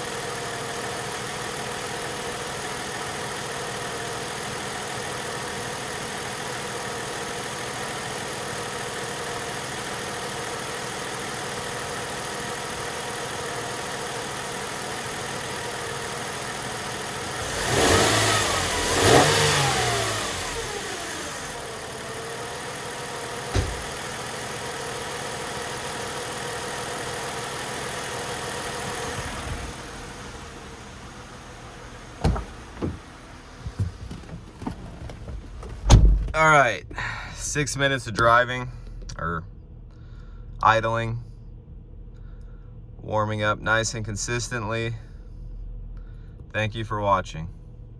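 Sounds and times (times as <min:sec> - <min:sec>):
car engine idling and revving: 0:00.0 - 0:47.9
sharp knocks: 0:23.5 - 0:24.0, 0:32.2 - 0:33.0.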